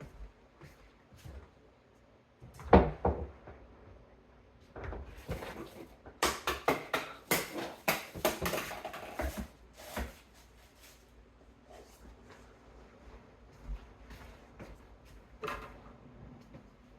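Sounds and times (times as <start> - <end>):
hard objects knocking and clattering: 4.8 - 9.5.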